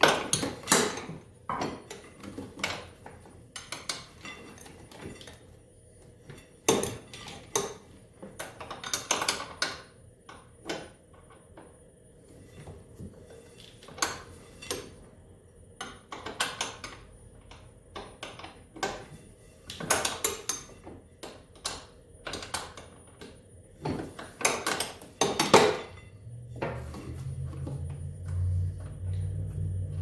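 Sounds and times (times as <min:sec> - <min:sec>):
hand tools and metal parts clinking: 0:18.2 - 0:30.0
steady low hum: 0:25.2 - 0:30.0.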